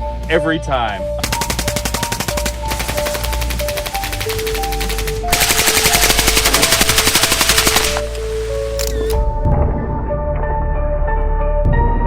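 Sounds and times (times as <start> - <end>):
background music: 0.0 - 12.0
rifle automatic fire: 1.2 - 8.8.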